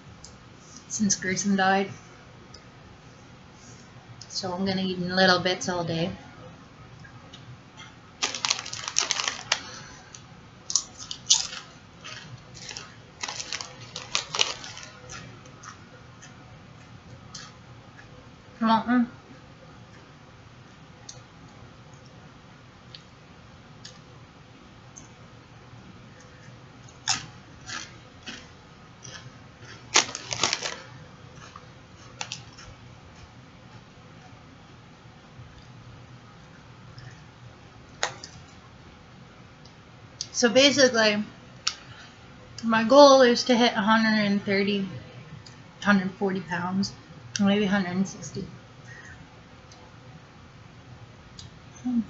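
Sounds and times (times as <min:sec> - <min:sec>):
plastic packaging crinkling: 0:08.2 - 0:15.3, 0:27.0 - 0:32.7.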